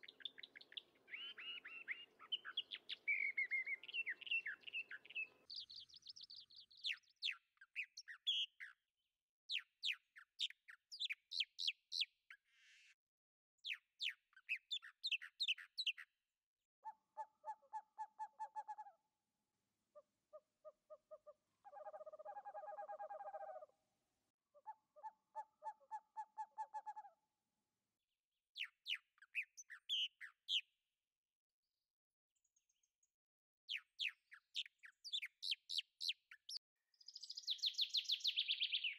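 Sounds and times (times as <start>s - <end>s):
rapid high bird chirps: 0.0s - 8.6s, 33.7s - 38.9s
lower pulsing bird calls: 0.0s - 8.7s, 33.7s - 38.9s.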